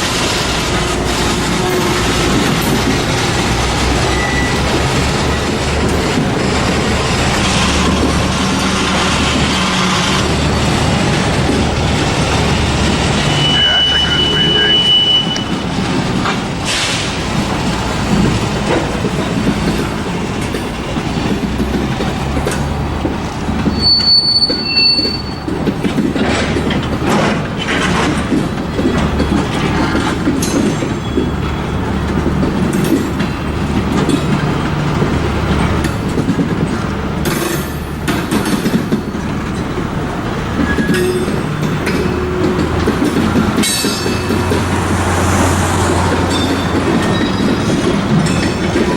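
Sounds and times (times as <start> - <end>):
train wheels clattering over rails: 0.0 - 48.9
high wheel squeal: 0.7 - 6.0, 13.1 - 15.7, 23.6 - 25.6, 40.6 - 42.6, 46.2 - 48.8.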